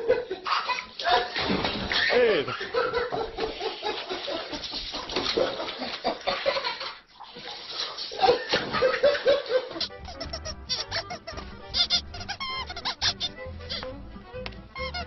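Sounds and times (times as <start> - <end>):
people laughing: 0.0 - 7.0, 8.2 - 11.5
people talking: 2.0 - 2.6.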